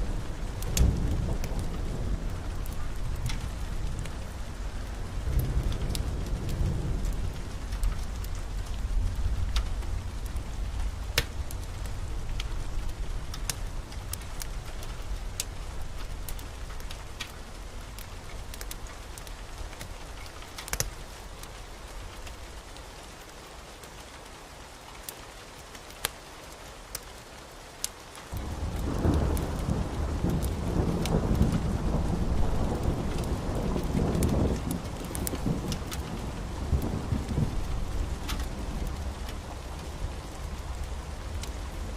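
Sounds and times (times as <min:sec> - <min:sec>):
rumble of thunder: 0:00.0 - 0:17.2, 0:28.4 - 0:41.9
steady rain: 0:00.0 - 0:41.9.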